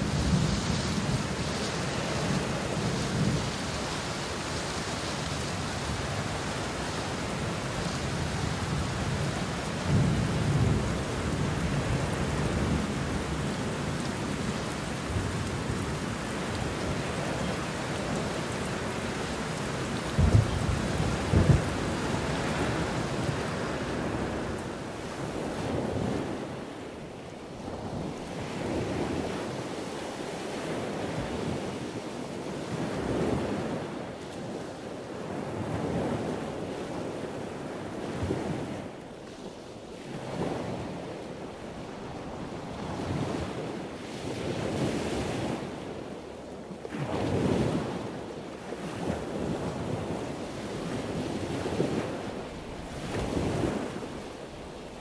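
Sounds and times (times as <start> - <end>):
wind buffeting microphone: 0.0 - 27.0, 47.0 - 55.0.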